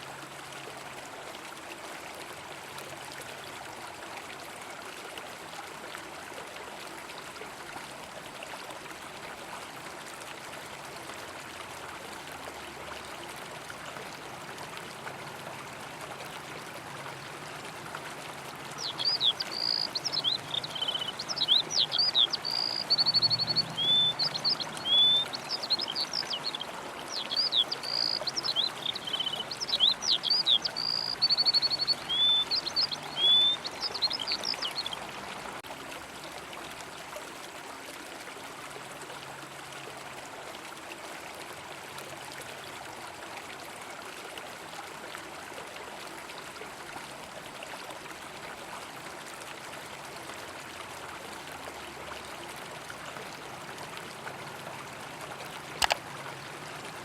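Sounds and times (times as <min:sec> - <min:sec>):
flowing river water: 0:00.0 - 0:57.0
songbird singing: 0:18.7 - 0:35.1.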